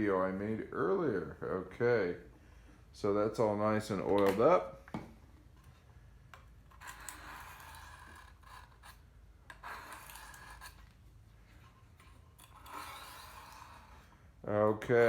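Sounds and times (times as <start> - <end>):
knife rubbing on sharpening stone: 6.8 - 10.9, 12.4 - 14.1.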